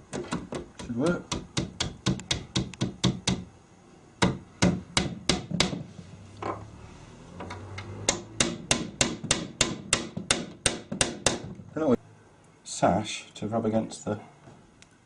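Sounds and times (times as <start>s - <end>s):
hammer tapping pins into wood: 0.1s - 3.5s, 4.2s - 5.8s, 8.1s - 11.6s.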